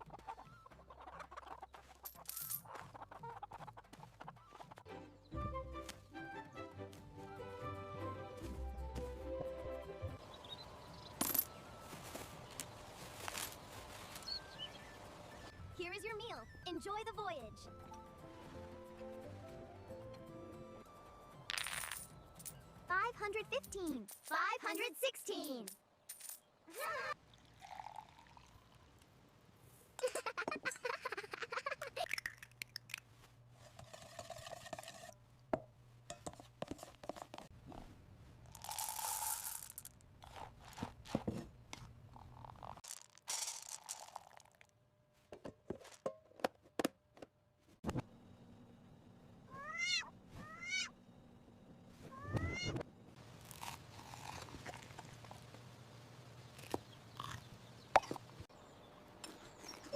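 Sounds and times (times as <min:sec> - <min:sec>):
kitten mewing: 0:49.5 - 0:50.9.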